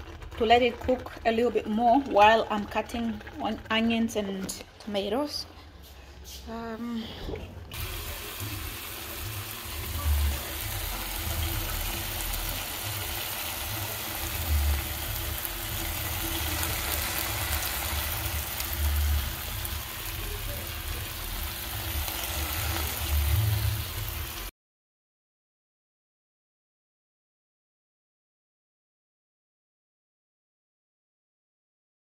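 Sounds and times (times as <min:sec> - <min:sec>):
vegetables sizzling in a pan: 0:07.7 - 0:24.5.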